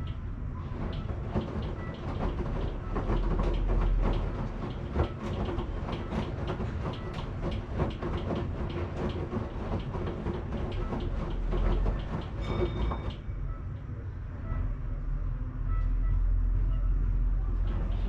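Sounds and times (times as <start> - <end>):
washing machine rumbling: 0.0 - 13.8, 17.3 - 18.0
clicks and knocks: 0.8 - 13.2.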